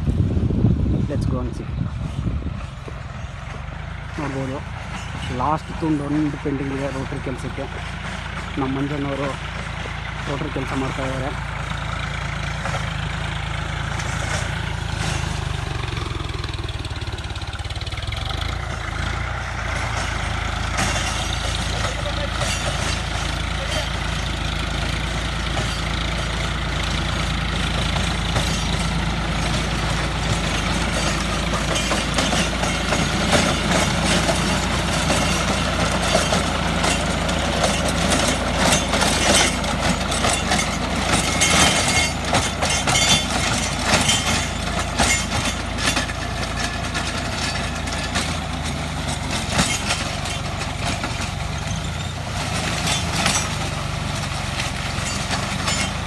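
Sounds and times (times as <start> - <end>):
tractor engine running: 0.0 - 56.0
sharp clattering and cracking: 18.0 - 56.0.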